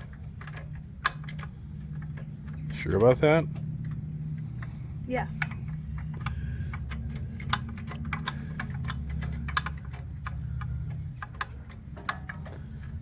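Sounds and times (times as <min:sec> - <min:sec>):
steady low hum: 0:00.0 - 0:13.0
metallic clicks of hand tools: 0:05.4 - 0:13.0.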